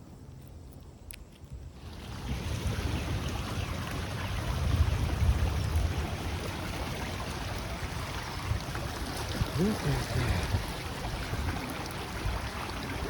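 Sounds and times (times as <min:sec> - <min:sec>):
wind buffeting microphone: 0:01.5 - 0:13.0
floodwater rushing: 0:01.8 - 0:13.0.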